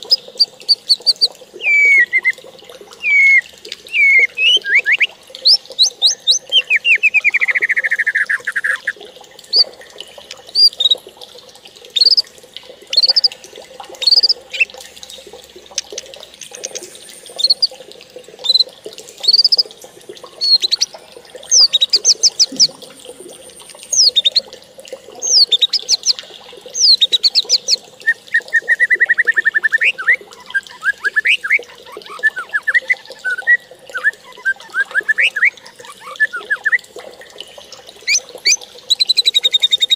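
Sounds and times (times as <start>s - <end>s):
birds chirping: 0.0s - 2.3s, 3.0s - 8.9s, 18.4s - 19.7s, 20.3s - 24.5s, 25.2s - 26.2s, 26.8s - 36.8s.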